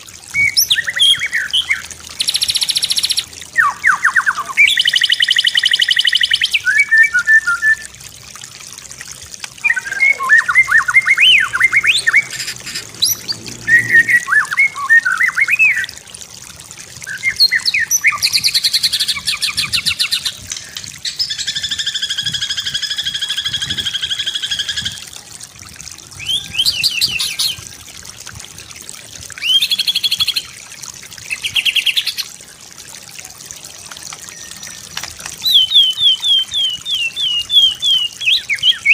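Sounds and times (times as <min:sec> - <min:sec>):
bird singing whistled trills: 0:00.4 - 0:07.9, 0:09.6 - 0:15.9, 0:17.1 - 0:25.0, 0:26.2 - 0:27.7, 0:29.4 - 0:30.5, 0:34.2 - 0:38.9.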